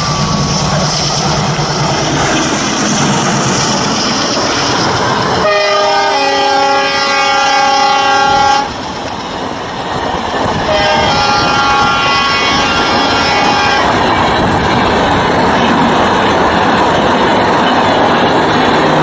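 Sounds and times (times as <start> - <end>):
diesel locomotive rushing past: 0.0 - 19.0
train wheels rolling on rails: 0.0 - 19.0
train horn blast: 5.4 - 8.8, 10.6 - 14.0.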